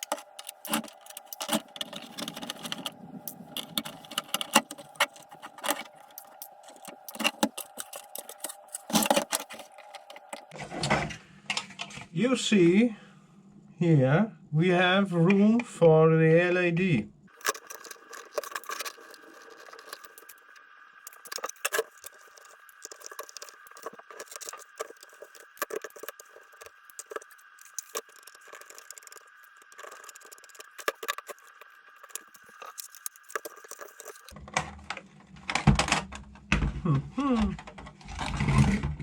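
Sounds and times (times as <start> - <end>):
plastic parts clicking and rattling: 0.0 - 11.9, 17.3 - 39.0
faint steady high hum: 0.0 - 37.9.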